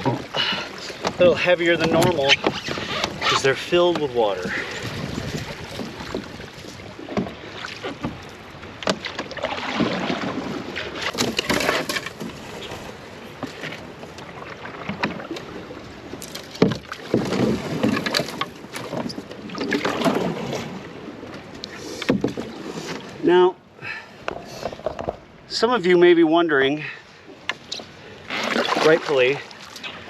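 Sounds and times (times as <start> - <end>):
water splashing and sloshing: 0.0 - 30.0
knocks against canoe hull: 1.0 - 3.2, 16.4 - 19.1, 22.0 - 22.5.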